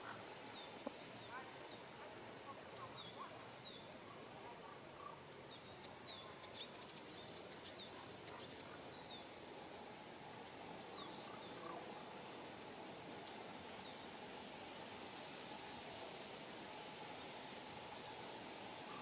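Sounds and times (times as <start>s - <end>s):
soft steady hiss: 0.0s - 19.0s
small bird calling: 10.9s - 12.0s.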